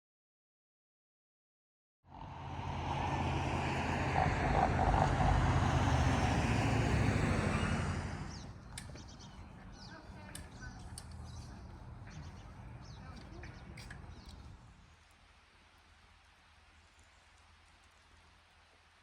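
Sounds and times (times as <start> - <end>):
vehicle engine driving past: 2.1 - 9.4
birds chirping: 2.8 - 15.2.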